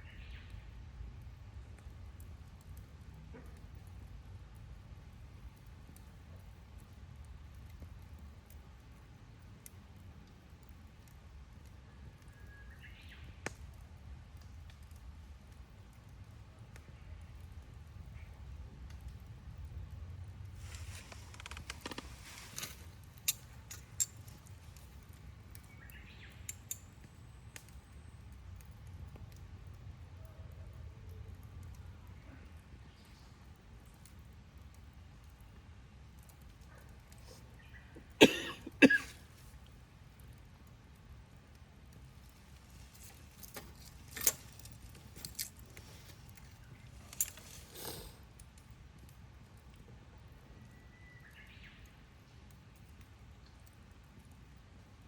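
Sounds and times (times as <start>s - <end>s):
campfire wood crackling: 0.0s - 55.0s
low steady background: 0.0s - 55.0s.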